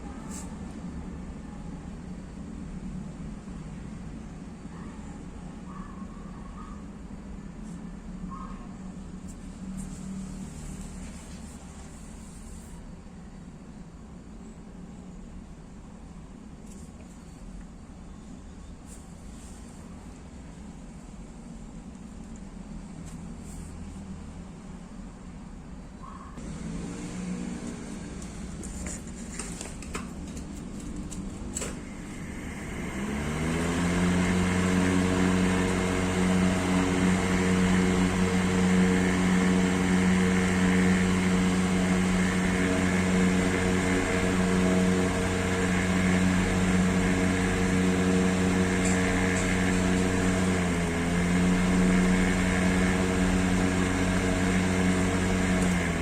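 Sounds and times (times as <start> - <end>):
exhaust fan motor hum: 8.9 - 13.1, 26.4 - 56.0.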